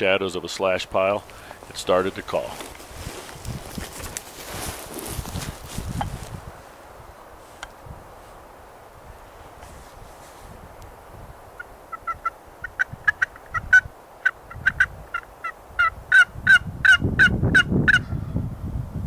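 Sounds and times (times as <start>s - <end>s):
turkey clucking: 11.6s - 18.0s.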